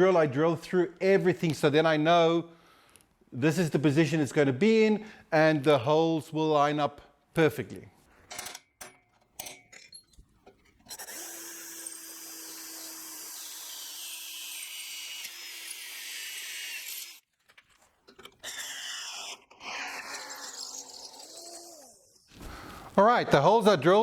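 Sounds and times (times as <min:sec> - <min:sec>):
electric drill boring: 0:10.8 - 0:17.2, 0:18.2 - 0:22.9.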